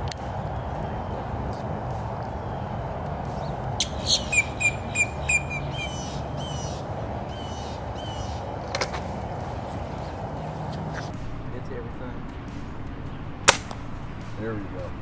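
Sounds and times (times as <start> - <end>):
small bird chirping: 3.3 - 8.8.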